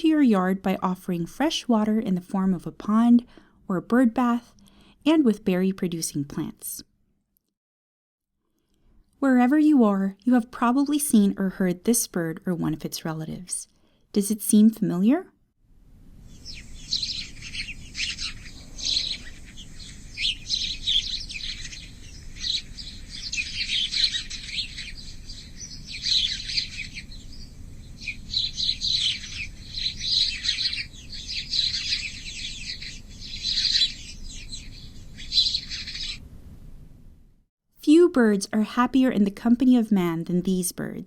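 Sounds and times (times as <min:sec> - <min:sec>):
sparrows chirping: 0:16.2 - 0:36.2.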